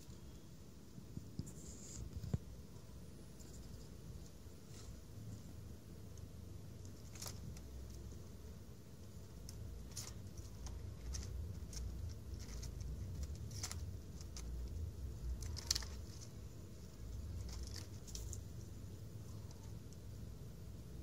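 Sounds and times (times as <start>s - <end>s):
claws scratching tree bark: 6.7s - 8.4s, 9.0s - 20.0s.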